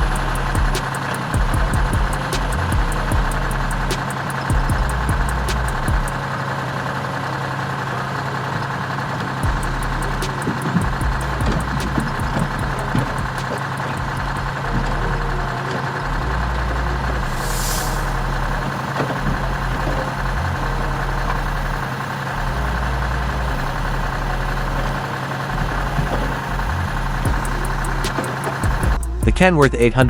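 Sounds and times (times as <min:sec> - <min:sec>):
heavy diesel machinery running: 0:00.0 - 0:30.0
released air hissing: 0:17.2 - 0:18.8.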